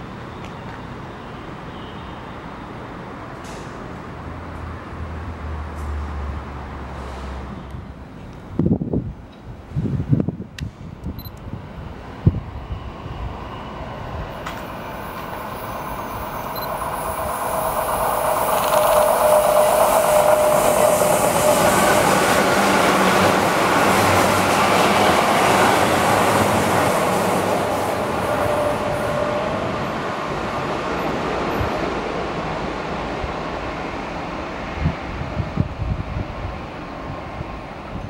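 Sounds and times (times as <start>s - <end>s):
train rumble and wheel clatter: 0.0s - 38.0s
steady train whine: 10.2s - 38.0s.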